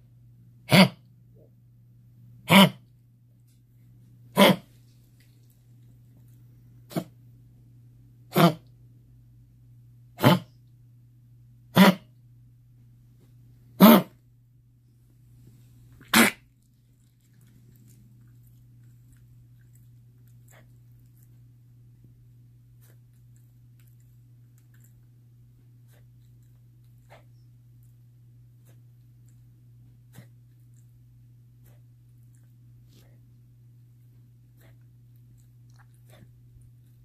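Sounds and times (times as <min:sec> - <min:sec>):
puppy honking coughs: 0:00.7 - 0:01.0, 0:02.5 - 0:02.8, 0:04.4 - 0:04.7, 0:06.9 - 0:07.1, 0:08.3 - 0:08.6, 0:10.2 - 0:10.5, 0:11.7 - 0:12.1, 0:13.8 - 0:14.2, 0:16.0 - 0:16.5.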